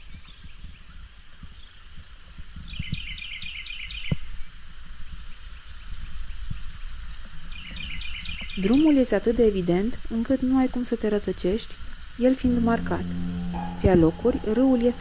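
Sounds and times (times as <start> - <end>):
outdoor hiss and low rumble: 0.0 - 15.0
songbird singing: 7.5 - 9.0.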